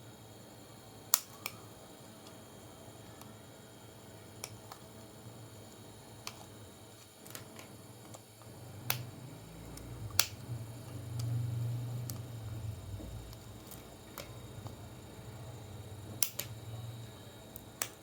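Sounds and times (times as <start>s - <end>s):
low hum: 8.4s - 17.8s
sharp clicks and taps: 9.8s - 11.4s, 16.1s - 16.6s.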